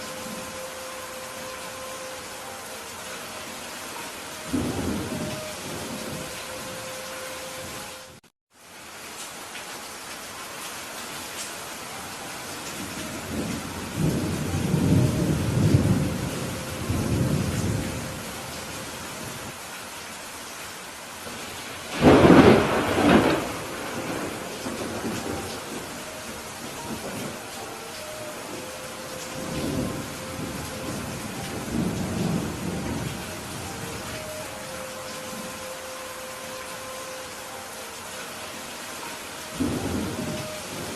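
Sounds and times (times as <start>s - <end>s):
steady rain falling: 0.0s - 40.9s
thunder rumbling: 4.4s - 6.8s, 13.0s - 18.5s, 21.9s - 27.6s, 28.4s - 35.6s.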